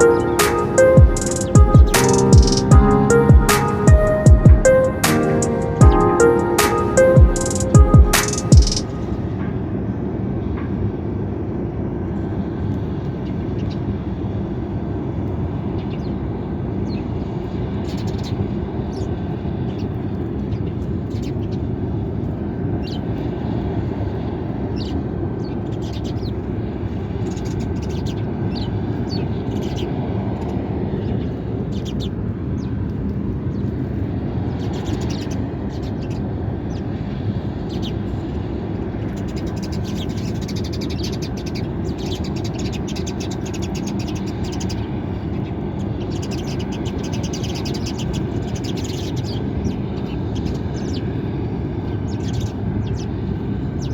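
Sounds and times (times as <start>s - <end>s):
sparrows chirping: 39.2s - 44.8s.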